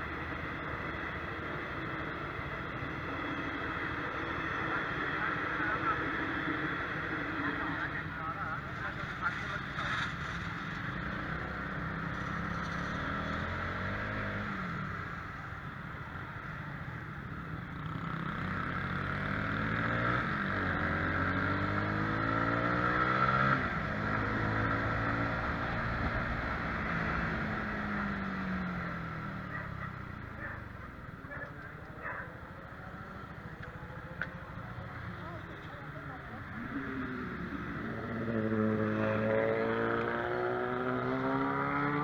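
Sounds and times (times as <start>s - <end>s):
wind and road noise: 0.0s - 42.0s
motorcycle engine accelerating: 9.8s - 15.4s, 17.7s - 42.0s
vehicle engine passing: 17.8s - 42.0s.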